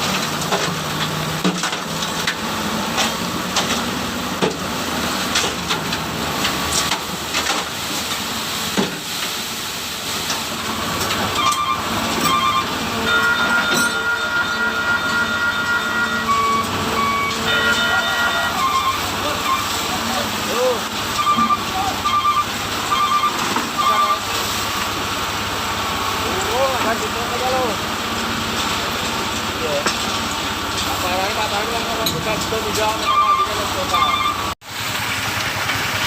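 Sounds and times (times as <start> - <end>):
sand rushing from dump truck: 0.0 - 33.9, 34.7 - 36.0
high beeping tones: 11.4 - 19.8, 21.2 - 24.3, 33.0 - 34.6.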